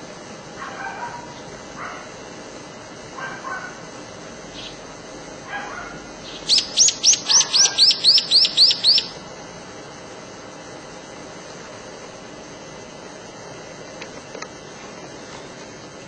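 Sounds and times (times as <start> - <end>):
songbird singing: 4.5 - 4.8, 6.2 - 9.2.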